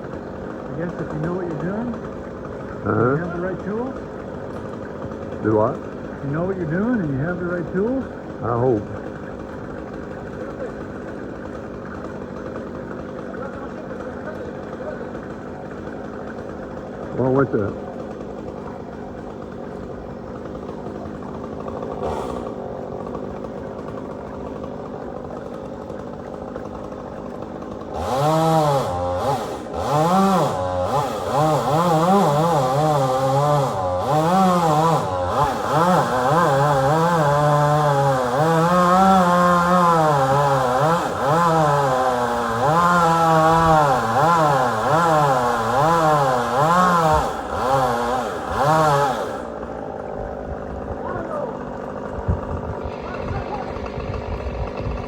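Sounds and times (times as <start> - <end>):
engine idling low: 0.0 - 28.1, 49.4 - 55.0
chainsaw cutting wood: 0.0 - 55.0.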